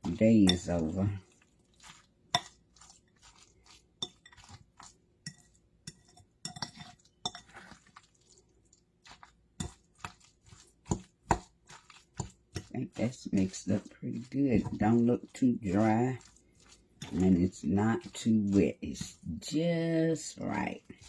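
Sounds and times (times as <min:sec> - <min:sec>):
spoon stirring salad: 0:00.0 - 0:21.0
spoon clinking against bowl: 0:04.0 - 0:04.5, 0:05.2 - 0:07.6.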